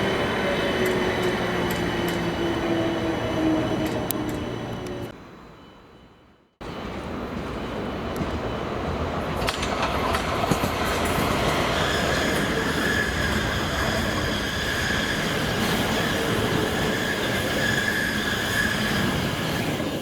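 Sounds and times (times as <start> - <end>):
train rumbling on rails: 0.0 - 20.0
high-pitched wheel squeal: 11.6 - 19.3.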